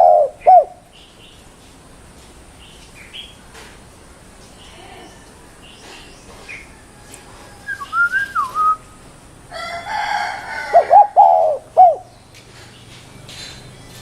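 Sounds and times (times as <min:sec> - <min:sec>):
dove cooing: 0:00.0 - 0:00.9, 0:09.6 - 0:12.7
gliding whistled bird call: 0:07.6 - 0:09.0.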